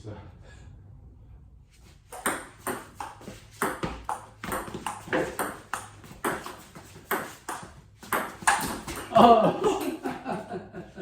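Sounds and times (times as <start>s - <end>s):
table tennis ball clicking: 2.2s - 9.1s.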